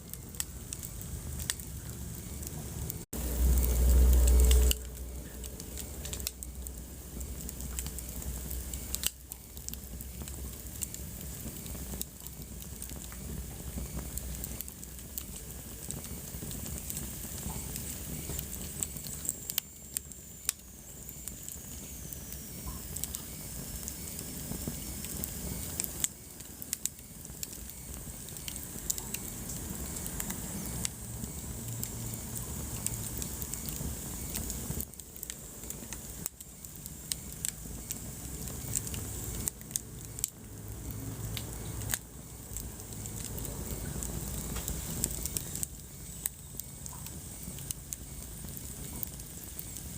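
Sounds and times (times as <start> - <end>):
wood fire crackling and popping: 0.0 - 49.9.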